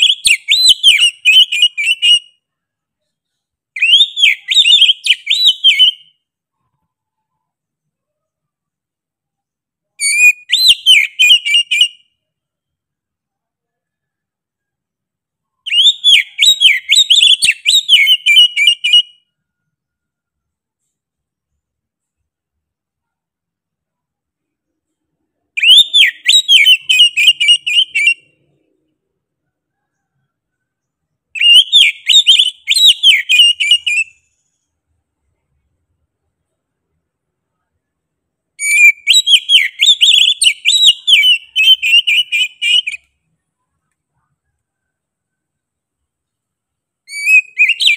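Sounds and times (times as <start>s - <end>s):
bird singing whistled notes: 0.0s - 7.4s, 9.9s - 12.7s, 15.5s - 19.8s, 25.4s - 28.9s, 29.7s - 34.7s, 38.6s - 43.1s, 47.1s - 47.9s.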